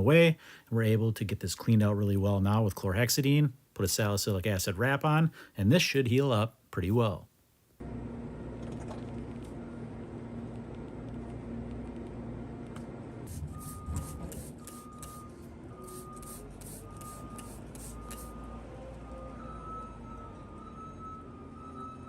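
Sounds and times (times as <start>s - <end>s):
reversing alarm beeping: 13.3s - 22.0s.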